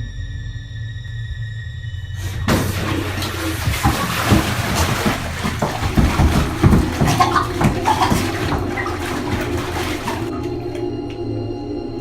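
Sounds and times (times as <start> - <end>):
water splashing and sloshing: 2.2 - 11.2
low musical drone: 9.8 - 12.0.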